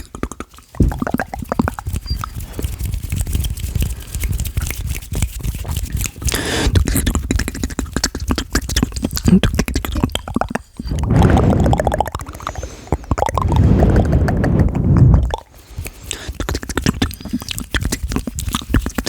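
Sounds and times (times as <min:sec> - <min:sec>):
wet mouth clicks and smacks: 0:00.0 - 0:10.0.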